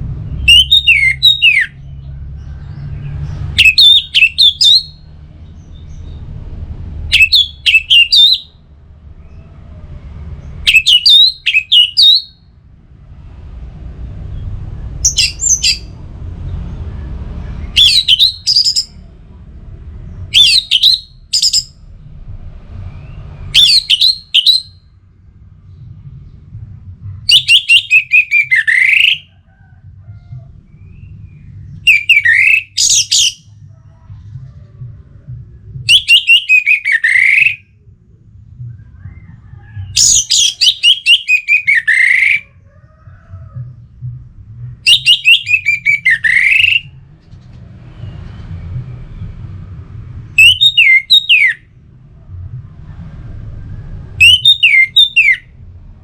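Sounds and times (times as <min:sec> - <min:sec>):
thrush singing: 0:00.0 - 0:16.1, 0:16.7 - 0:25.0, 0:27.2 - 0:29.4, 0:30.5 - 0:37.7, 0:39.8 - 0:42.5, 0:44.8 - 0:47.2, 0:53.9 - 0:56.0
faint low rumble: 0:00.0 - 0:36.1, 0:36.9 - 0:56.0.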